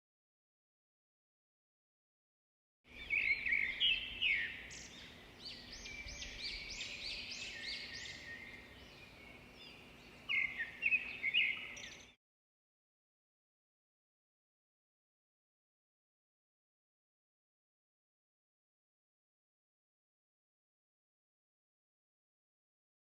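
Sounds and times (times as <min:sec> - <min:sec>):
bird singing: 0:02.9 - 0:12.2.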